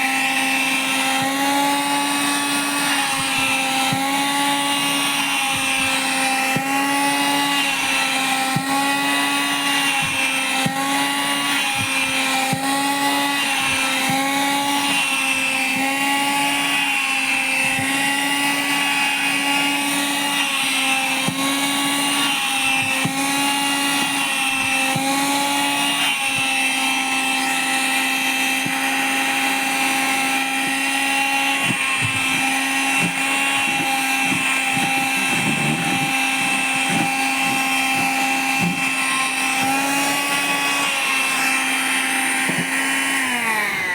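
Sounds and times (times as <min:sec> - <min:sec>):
vacuum cleaner motor whine: 0:00.0 - 0:43.9.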